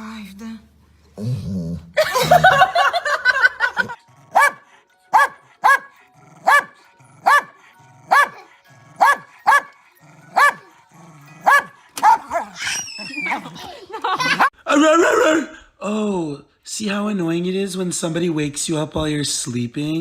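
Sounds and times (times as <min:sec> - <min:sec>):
dog barking: 0:04.3 - 0:10.7, 0:11.4 - 0:12.6.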